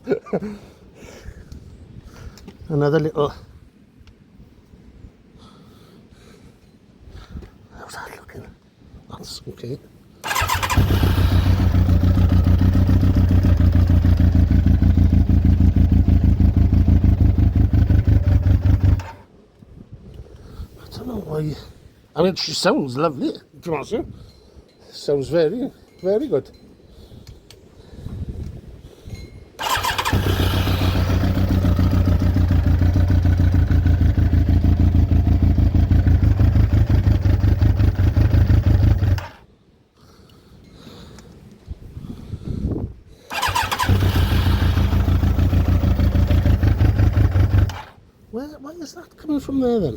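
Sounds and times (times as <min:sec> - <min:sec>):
motorcycle engine idling: 0:10.3 - 0:19.2, 0:29.6 - 0:39.4, 0:43.3 - 0:47.9.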